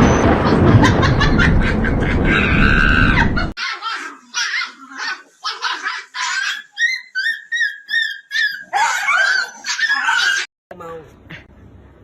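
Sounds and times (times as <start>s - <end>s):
dog yipping and whining: 2.7s - 10.5s.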